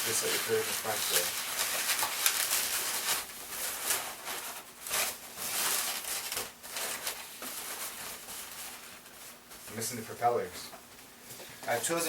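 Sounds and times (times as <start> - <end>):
balloons squeaking and rubbing: 0.0 - 9.1.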